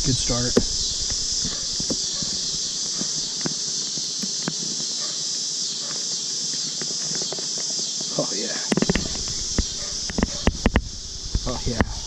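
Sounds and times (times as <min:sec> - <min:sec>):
high-pitched insect chorus: 0:00.0 - 0:12.0
hive frames clicking and knocking: 0:00.1 - 0:05.3, 0:05.9 - 0:12.0.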